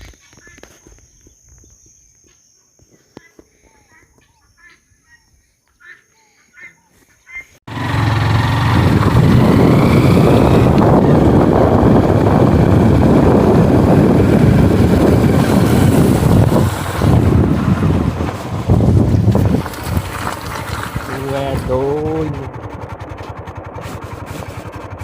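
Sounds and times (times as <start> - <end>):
storm wind buffeting microphone: 8.5 - 22.6.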